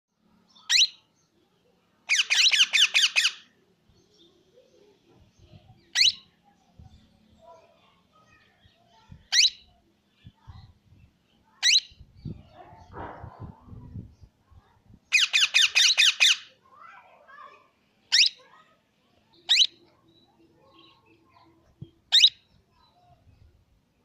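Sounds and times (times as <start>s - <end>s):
parakeet calling: 0.6s - 1.0s, 2.1s - 3.5s, 5.8s - 6.3s, 9.3s - 9.7s, 11.6s - 12.0s, 15.1s - 16.6s, 18.1s - 18.5s, 19.4s - 19.9s, 22.1s - 22.5s.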